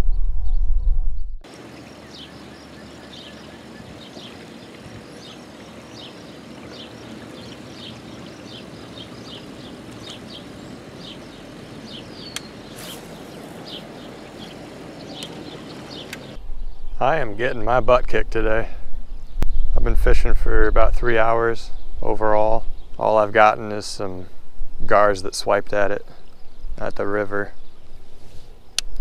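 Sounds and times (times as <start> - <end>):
bird chirping: 1.5 - 17.5
steady background hiss: 1.5 - 18.9.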